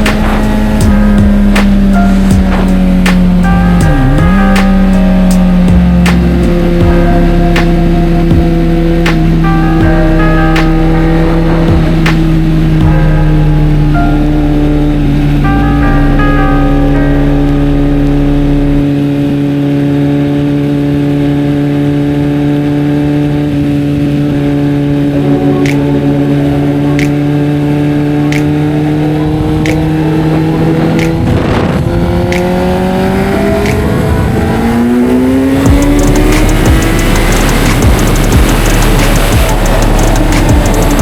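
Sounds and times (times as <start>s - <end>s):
motorcycle engine cruising: 0.0s - 41.0s
sharp ticks: 35.6s - 41.0s.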